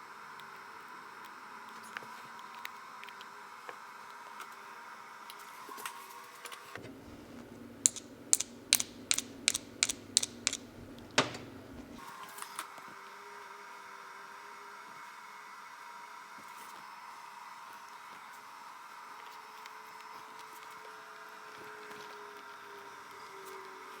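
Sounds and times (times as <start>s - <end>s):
low steady hum: 6.8s - 12.0s
sharp light clicks: 7.9s - 11.4s.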